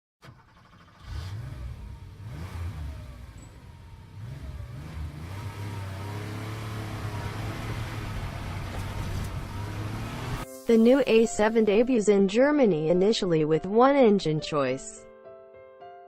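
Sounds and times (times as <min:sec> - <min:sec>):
car engine revving: 0:00.3 - 0:10.4.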